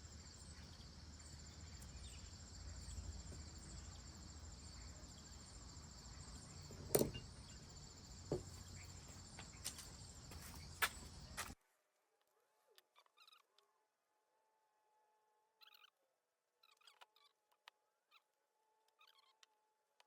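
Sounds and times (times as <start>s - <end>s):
crickets chirring: 0.0s - 11.6s.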